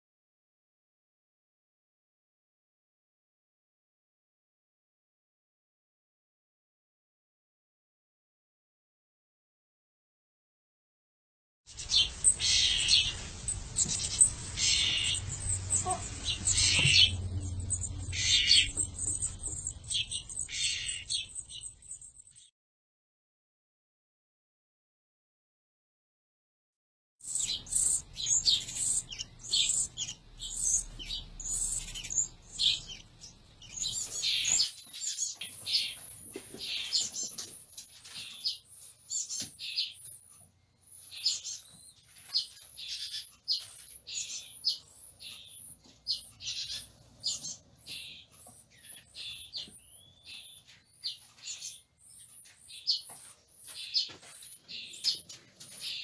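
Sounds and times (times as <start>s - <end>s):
baby birds chirping: 11.7s - 22.5s, 27.2s - 56.0s.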